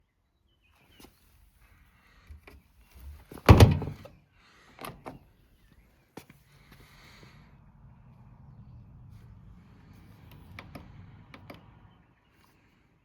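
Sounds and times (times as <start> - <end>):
washing machine door thud: 3.5 - 3.9
light clicks and knocks: 10.2 - 11.9.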